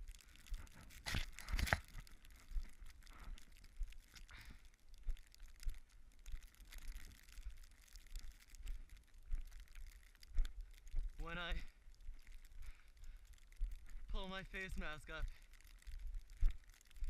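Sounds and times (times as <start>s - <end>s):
footsteps crunching in snow: 0.0s - 4.3s.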